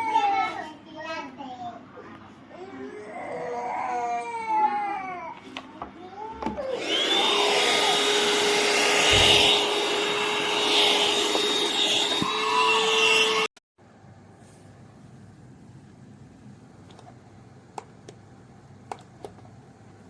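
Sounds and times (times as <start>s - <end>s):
handheld vacuum cleaner whine: 6.5s - 13.5s.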